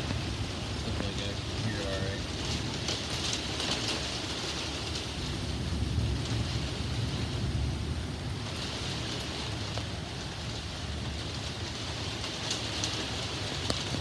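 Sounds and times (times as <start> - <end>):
heavy rain pattering: 0.0 - 14.0
low continuous rumble: 0.0 - 14.0.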